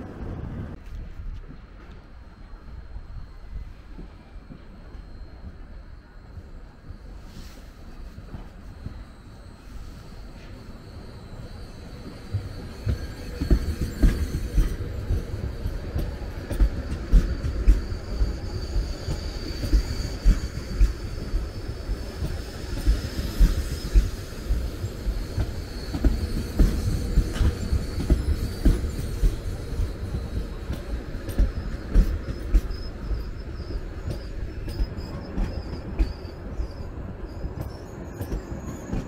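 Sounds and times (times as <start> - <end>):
train rail rumble: 0.0 - 39.0
high wheel squeal: 8.4 - 39.0.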